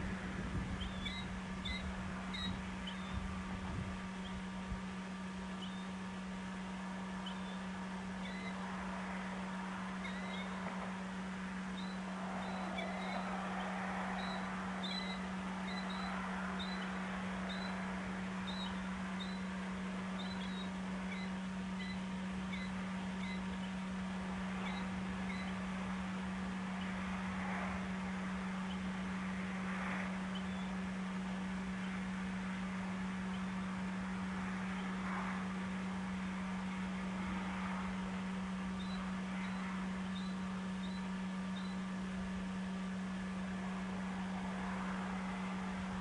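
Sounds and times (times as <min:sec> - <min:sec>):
low hum: 0:00.0 - 0:46.0
bird chirping: 0:00.7 - 0:03.3, 0:05.6 - 0:06.0, 0:07.2 - 0:08.6, 0:10.0 - 0:10.7, 0:11.7 - 0:17.8, 0:18.4 - 0:23.9, 0:24.6 - 0:25.6, 0:30.3 - 0:30.8, 0:38.8 - 0:41.8.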